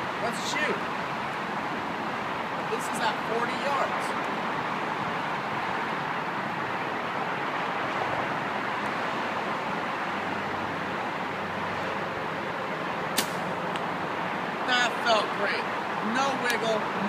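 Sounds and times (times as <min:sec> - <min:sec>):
steady background hiss: 0:00.0 - 0:17.0
bow shot snap: 0:13.1 - 0:13.6.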